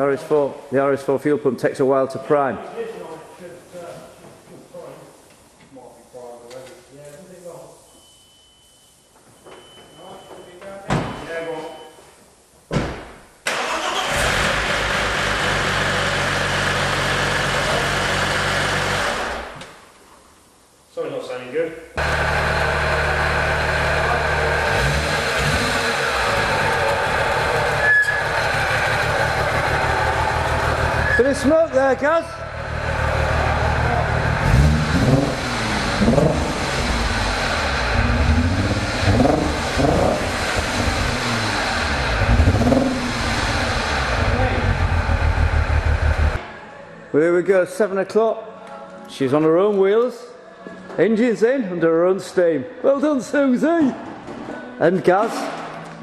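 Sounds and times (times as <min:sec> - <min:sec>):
car engine starting and running: 0:13.5 - 0:19.6, 0:22.0 - 0:31.2, 0:32.4 - 0:46.4.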